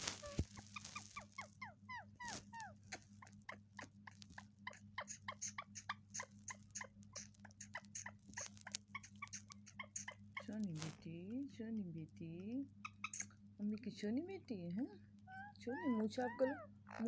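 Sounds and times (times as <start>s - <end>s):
parrot squeaky chirps: 0.0s - 10.6s, 12.8s - 13.4s, 15.2s - 17.0s.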